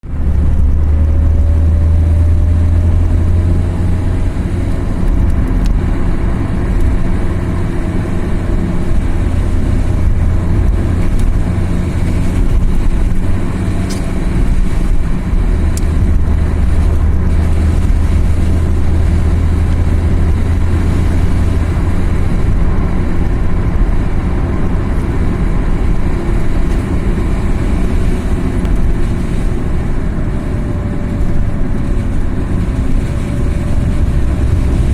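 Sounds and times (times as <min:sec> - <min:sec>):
car engine drone: 0:00.0 - 0:34.9
road noise: 0:00.0 - 0:34.9.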